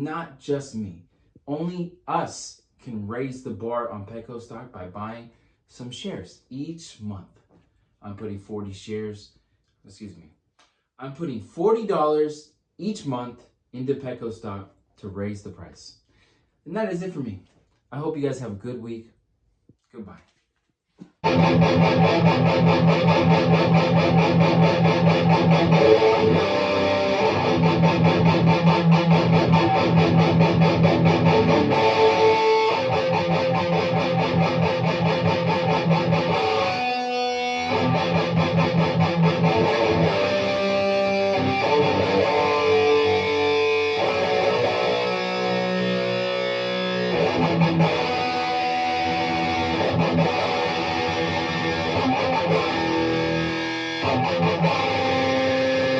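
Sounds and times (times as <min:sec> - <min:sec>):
electric guitar playing: 0:21.2 - 0:55.9.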